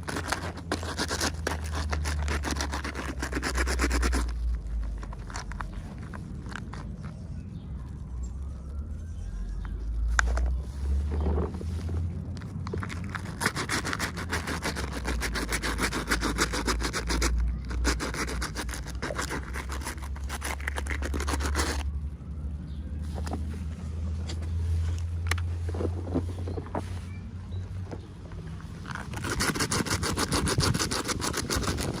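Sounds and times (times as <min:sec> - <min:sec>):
packaging scraping and rustling: 0:00.0 - 0:07.4, 0:09.6 - 0:21.9, 0:28.4 - 0:32.0.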